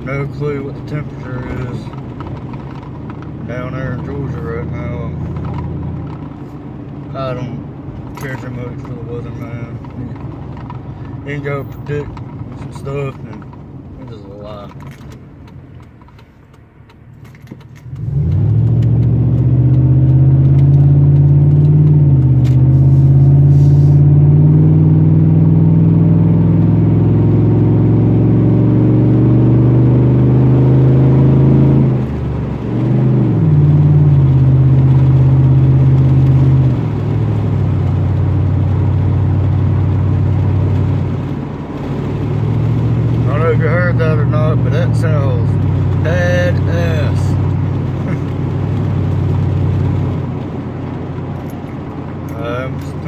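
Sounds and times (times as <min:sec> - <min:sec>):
truck engine droning: 0:17.8 - 0:53.0.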